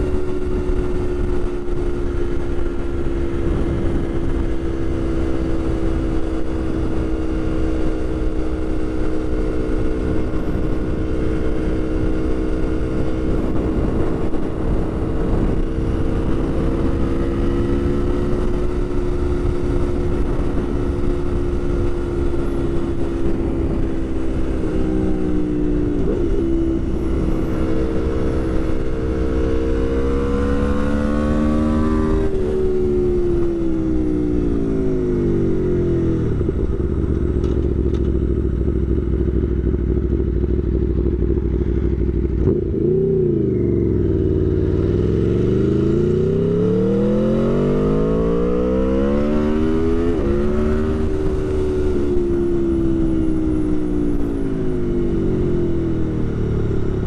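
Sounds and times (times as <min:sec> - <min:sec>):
motorcycle engine revving: 0:00.0 - 0:57.0
wind rush inside helmet: 0:02.8 - 0:06.2, 0:12.2 - 0:28.0.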